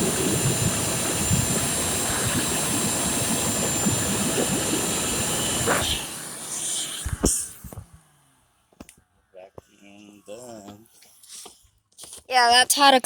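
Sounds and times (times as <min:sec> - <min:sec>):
vacuum cleaner running: 0:00.0 - 0:08.6.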